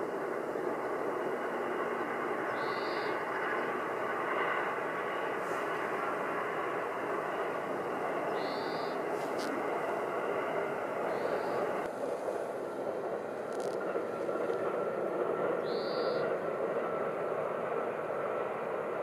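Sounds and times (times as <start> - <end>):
distant high-speed train rushing: 0.0 - 19.0.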